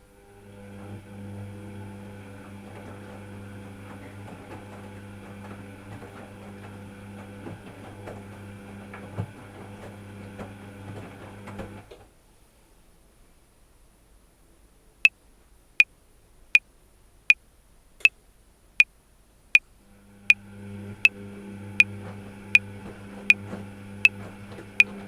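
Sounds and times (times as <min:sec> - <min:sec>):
washing machine motor hum: 0:00.0 - 0:12.0, 0:19.8 - 0:25.0.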